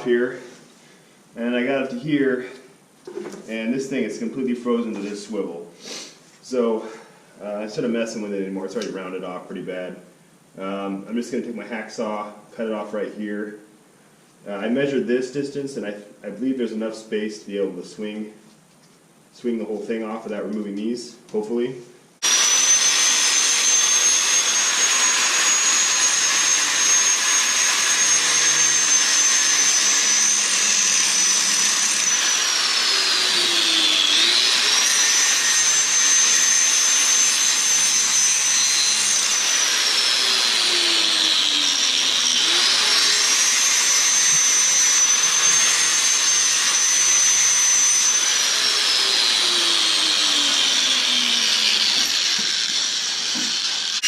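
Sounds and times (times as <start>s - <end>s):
power saw cutting steel: 22.2s - 54.0s.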